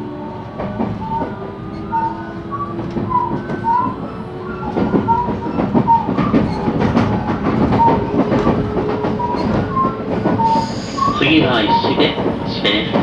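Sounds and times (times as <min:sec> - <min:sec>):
train wheels on rail: 0:00.0 - 0:13.0
rail-joint clicks: 0:00.4 - 0:13.0.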